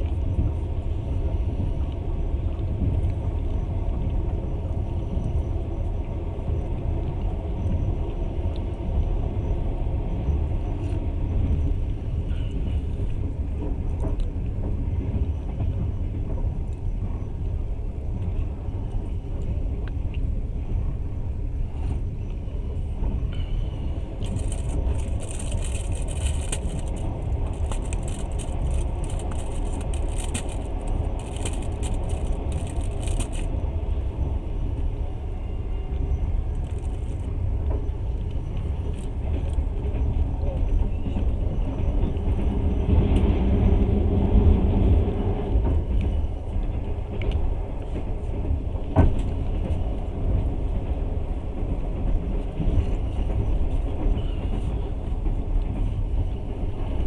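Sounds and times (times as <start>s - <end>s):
train wheels rumbling on rails: 0.0s - 57.0s
high crackly rattling: 24.2s - 33.5s.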